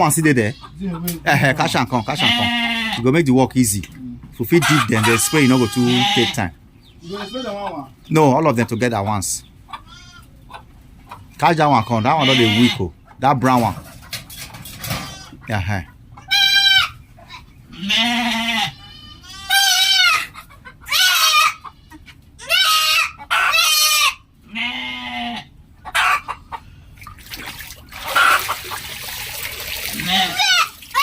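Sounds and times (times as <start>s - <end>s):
goats bleating: 0.0s - 3.2s, 4.6s - 7.9s, 9.7s - 10.3s, 11.5s - 12.9s, 14.9s - 15.4s, 16.2s - 25.6s, 29.8s - 31.0s.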